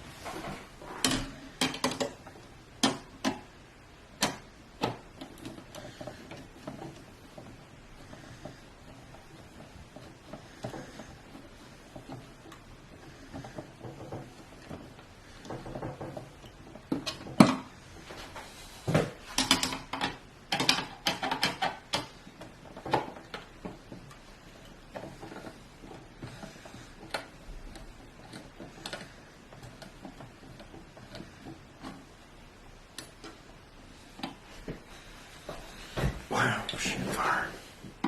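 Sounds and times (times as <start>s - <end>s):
computer parts and screws clattering: 19.2s - 32.1s.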